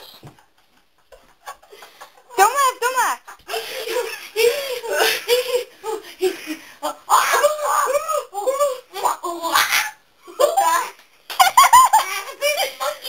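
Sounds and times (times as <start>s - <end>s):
girls laughing: 3.2s - 13.0s.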